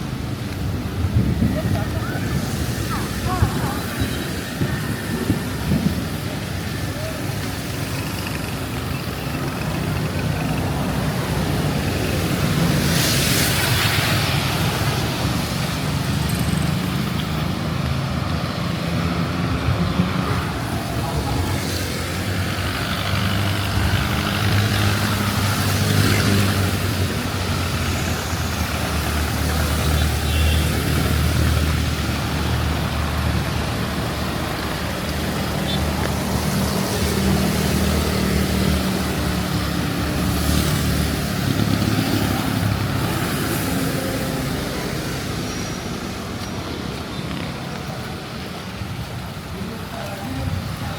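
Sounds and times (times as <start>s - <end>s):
hiss of rain and tyres: 0.0s - 50.9s
vehicle engines running: 0.0s - 50.9s.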